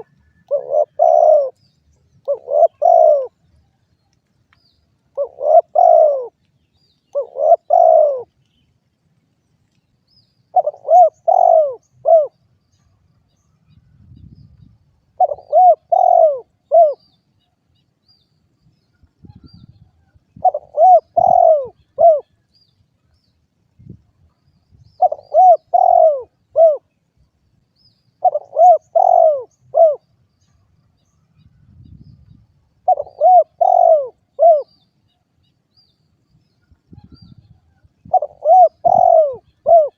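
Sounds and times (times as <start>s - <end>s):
dove cooing: 0.0s - 1.6s, 2.2s - 3.4s, 5.1s - 6.4s, 7.1s - 8.3s, 10.5s - 12.4s, 15.2s - 17.0s, 20.4s - 22.3s, 25.0s - 26.9s, 28.2s - 30.1s, 32.8s - 34.7s, 38.0s - 39.9s.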